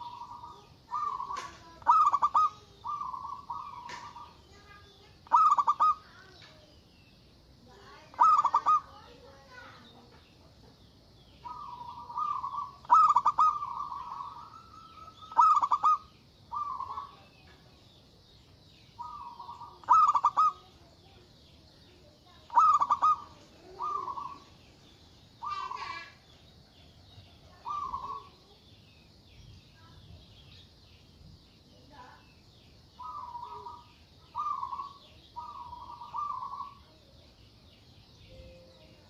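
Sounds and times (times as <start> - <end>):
dove cooing: 0.0 - 6.3, 8.1 - 9.0, 11.4 - 17.3, 19.0 - 20.9, 22.3 - 24.6, 25.4 - 26.2, 27.5 - 28.4, 33.0 - 37.0.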